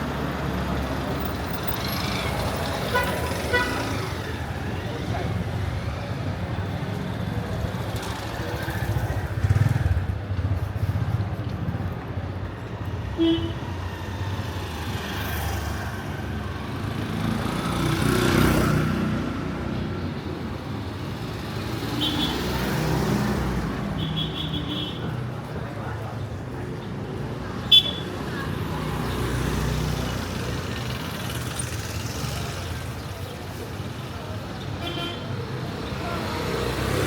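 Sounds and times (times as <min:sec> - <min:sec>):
motorcycles passing: 0:00.0 - 0:37.0
street traffic: 0:00.0 - 0:37.0.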